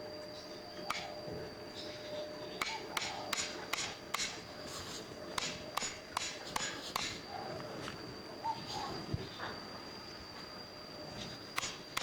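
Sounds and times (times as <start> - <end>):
faint high-pitched tone: 0.0 - 2.6.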